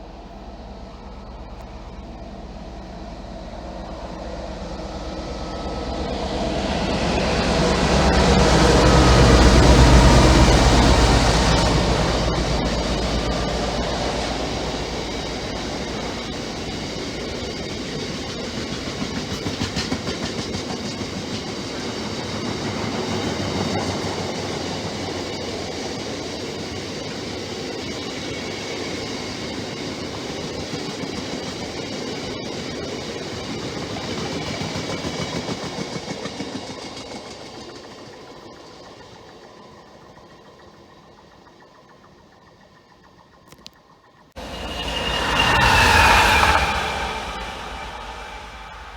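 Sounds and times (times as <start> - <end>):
train wheels rumbling and clattering: 0.0 - 26.4, 44.4 - 48.9.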